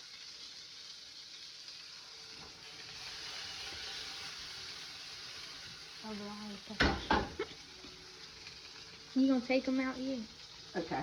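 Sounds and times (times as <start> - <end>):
dough sizzling in hot grease: 0.0 - 11.0.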